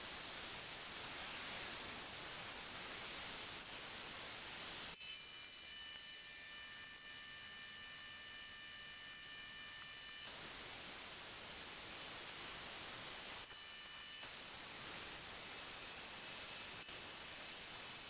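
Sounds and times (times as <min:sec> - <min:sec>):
milling machine hiss and hum: 0:00.0 - 0:05.0, 0:09.9 - 0:18.0.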